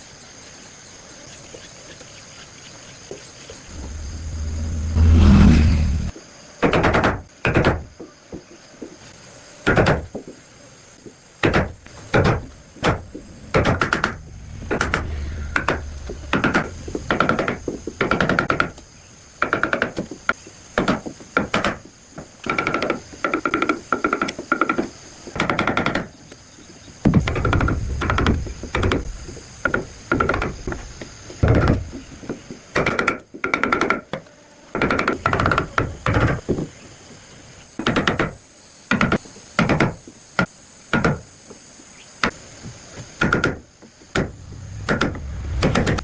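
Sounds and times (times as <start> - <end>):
loud low thump: 12.0 - 18.8, 44.2 - 46.0.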